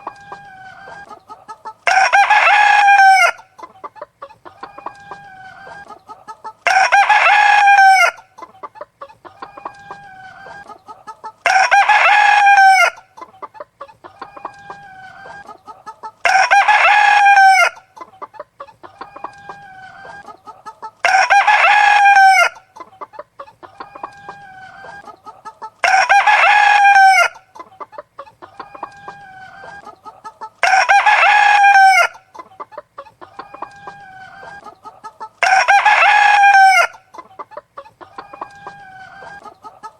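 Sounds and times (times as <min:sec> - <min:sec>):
hen clucking: 0:00.0 - 0:39.9
rooster crowing: 0:01.8 - 0:03.4, 0:06.6 - 0:08.2, 0:11.4 - 0:13.0, 0:16.2 - 0:17.8, 0:21.0 - 0:22.6, 0:25.8 - 0:27.4, 0:30.6 - 0:32.2, 0:35.4 - 0:37.0.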